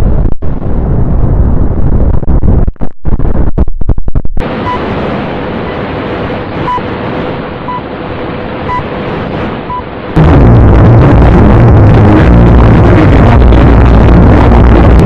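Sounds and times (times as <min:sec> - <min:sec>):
loud distorted rumble: 0:00.0 - 0:15.0
static-like hiss: 0:04.4 - 0:15.0
short beeps: 0:04.6 - 0:04.8, 0:06.6 - 0:06.9, 0:08.7 - 0:08.9, 0:09.7 - 0:09.9.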